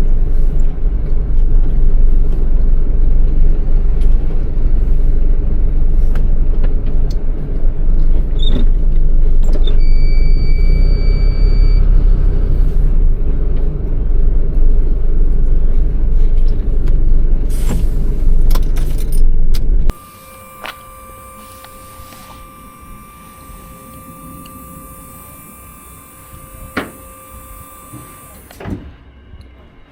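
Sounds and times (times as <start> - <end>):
diesel truck engine rumbling: 0.0 - 29.9
steady high tone: 9.8 - 13.2, 19.9 - 28.4.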